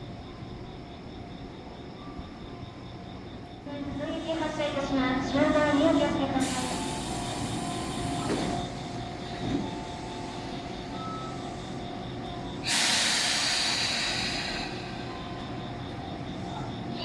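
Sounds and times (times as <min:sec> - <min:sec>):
electric train humming: 0:00.0 - 0:17.0
compressed air hiss: 0:06.4 - 0:08.5, 0:12.6 - 0:14.9.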